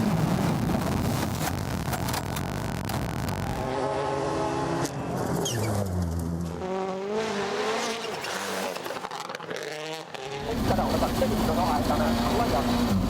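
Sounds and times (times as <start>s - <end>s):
rally car engine revving: 3.4s - 13.0s.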